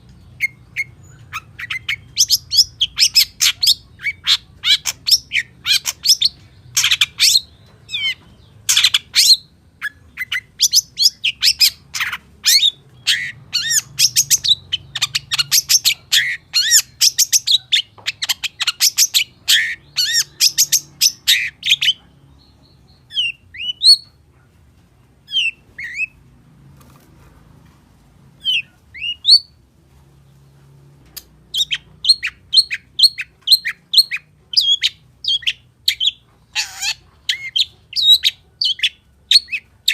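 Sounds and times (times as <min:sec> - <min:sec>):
shrike singing chirps and trills: 0:00.3 - 0:24.1.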